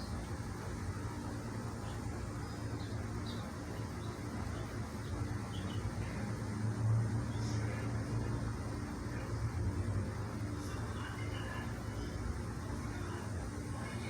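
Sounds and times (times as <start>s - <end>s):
small birds chirping: 0.0s - 6.3s
steady low hum: 0.0s - 14.0s.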